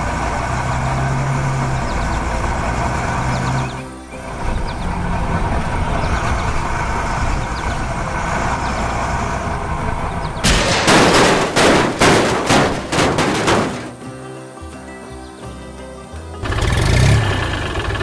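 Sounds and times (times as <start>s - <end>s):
heavy machine rumble: 4.1s - 14.0s
loud bangs and crashes: 9.5s - 14.2s.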